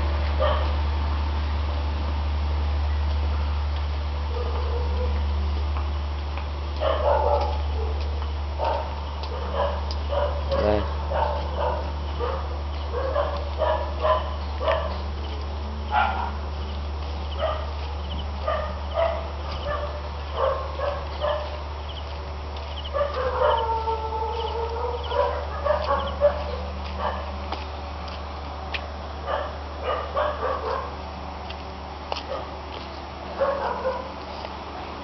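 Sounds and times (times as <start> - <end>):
steady low hum: 0.0 - 35.0
dog barking and yipping: 0.4 - 0.7, 4.3 - 5.2, 6.8 - 15.1, 15.9 - 16.5, 17.3 - 22.1, 22.7 - 27.4, 29.2 - 31.0, 32.2 - 32.6, 33.3 - 34.2
dog whining: 22.9 - 27.2.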